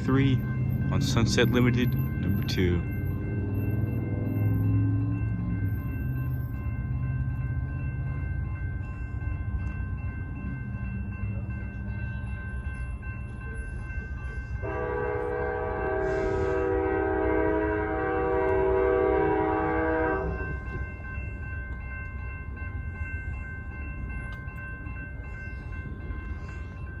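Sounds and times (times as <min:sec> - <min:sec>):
train rumbling: 0:00.0 - 0:27.0
train air horn blast: 0:14.6 - 0:20.4.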